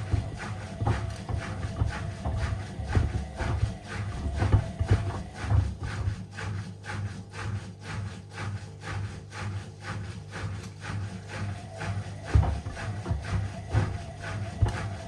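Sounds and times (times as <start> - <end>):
knocks and rubs of sneaker cleaning: 0.0 - 6.3, 12.3 - 15.0.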